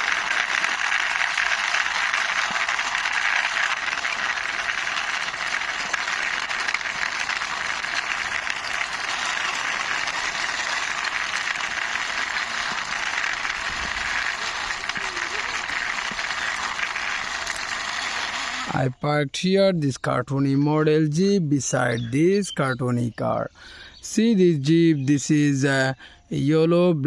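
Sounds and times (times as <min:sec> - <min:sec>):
toy wheels rolling and rattling: 0:00.0 - 0:18.8.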